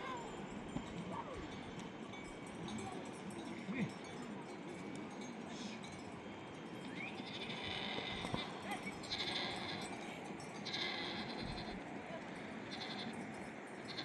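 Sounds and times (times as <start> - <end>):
sheep bleating: 6.9 - 10.0, 10.6 - 11.8, 12.4 - 13.2.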